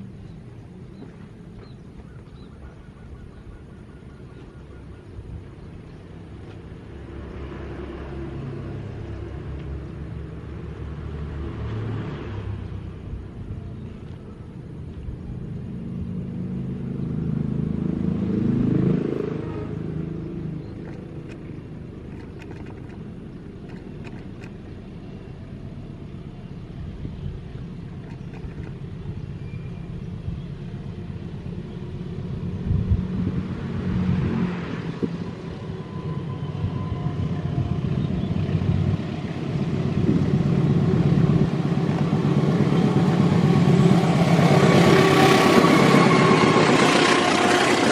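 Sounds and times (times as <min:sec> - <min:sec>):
vehicles passing by: 0:00.0 - 0:47.9
loud engine: 0:15.8 - 0:47.9
steady rumble: 0:17.9 - 0:35.4, 0:36.4 - 0:47.9.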